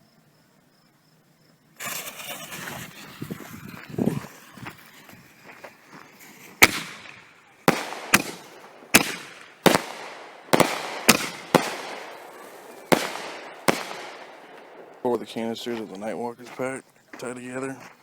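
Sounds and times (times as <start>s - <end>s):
mortar launches: 6.2s - 14.3s
firework shells booming: 6.4s - 15.8s.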